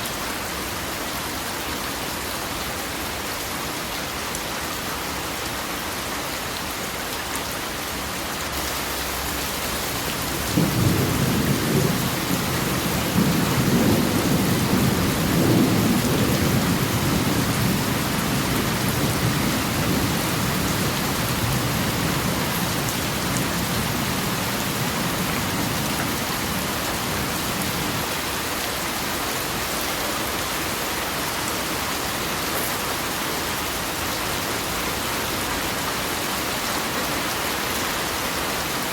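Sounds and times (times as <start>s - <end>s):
heavy rain: 0.0s - 38.9s
thunder rumbling: 10.1s - 28.0s.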